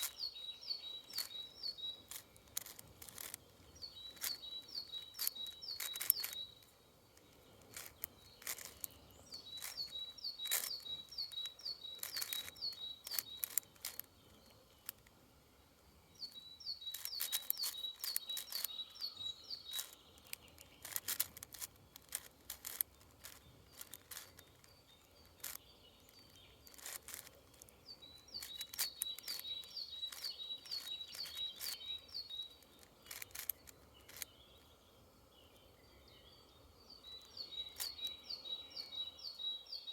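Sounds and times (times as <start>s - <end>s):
songbird singing: 0.0s - 39.9s
puzzle cube clicking: 1.0s - 6.7s, 7.6s - 15.1s, 16.8s - 34.3s.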